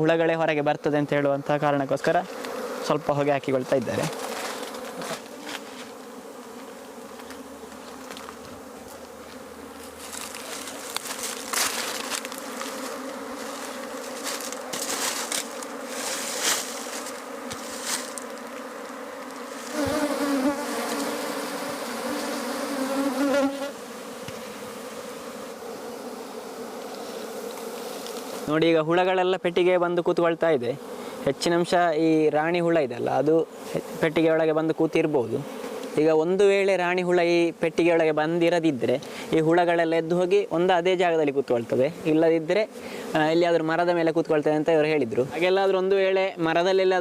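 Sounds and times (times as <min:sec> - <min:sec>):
bee buzzing close by: 0:00.0 - 0:47.0
bee colony buzzing: 0:00.0 - 0:47.0
rustling: 0:03.9 - 0:20.2.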